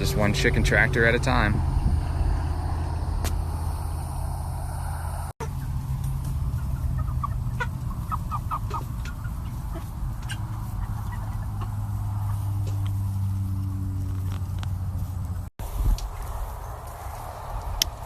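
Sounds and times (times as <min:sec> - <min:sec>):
steady low hum: 0:00.0 - 0:15.5
chickens clucking: 0:05.4 - 0:13.2.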